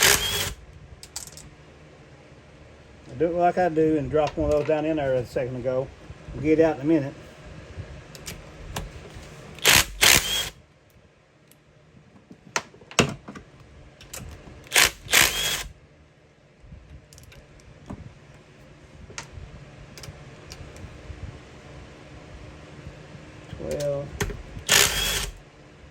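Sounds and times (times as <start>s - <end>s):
power tool bursts: 0.0s - 0.6s, 9.6s - 10.6s, 14.7s - 15.7s, 24.6s - 25.4s.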